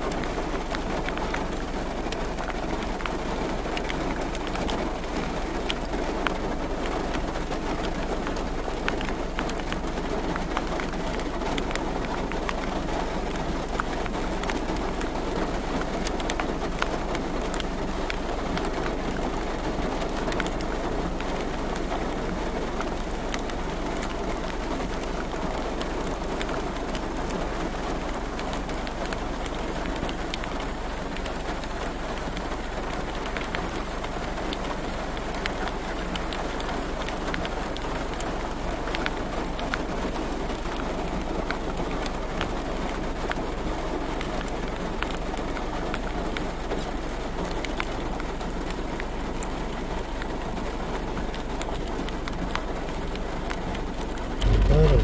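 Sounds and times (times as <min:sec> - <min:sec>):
raindrops tapping on a surface: 0:00.0 - 0:55.0
steady rain falling: 0:00.0 - 0:55.0.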